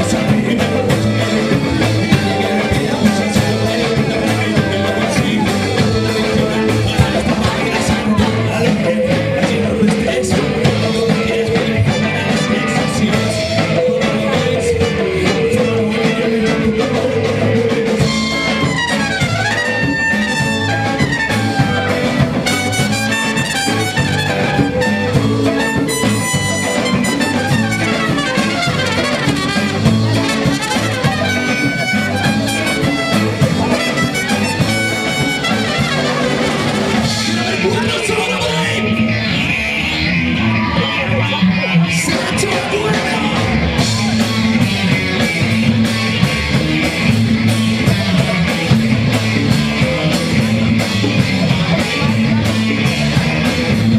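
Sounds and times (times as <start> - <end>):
high brass melody: 0.0 - 8.0, 10.6 - 38.6
live band playing: 0.0 - 53.9.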